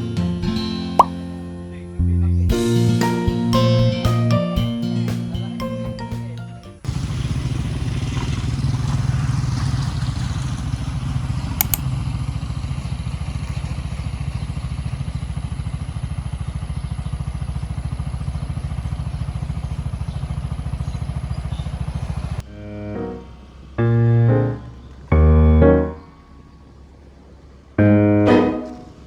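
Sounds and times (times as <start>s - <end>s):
small engine running: 6.8s - 25.2s
short click: 11.6s - 11.8s.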